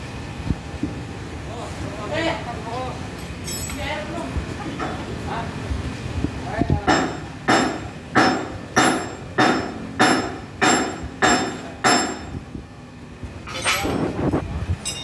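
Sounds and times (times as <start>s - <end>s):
hammer blows ringing: 6.9s - 12.4s.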